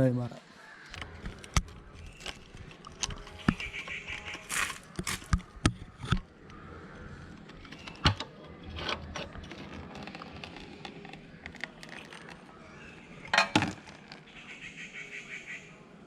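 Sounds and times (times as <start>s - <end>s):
metallic knocks: 13.3s - 13.8s.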